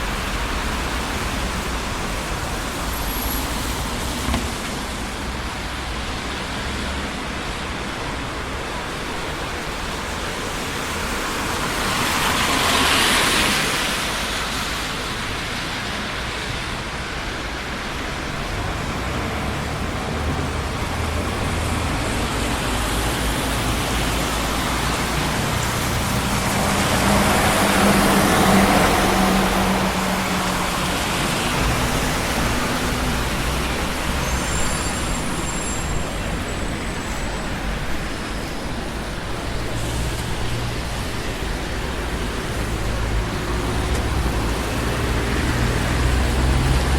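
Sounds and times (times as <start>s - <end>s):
busy street traffic: 0.0s - 46.9s
vehicle passing close by: 18.5s - 34.4s.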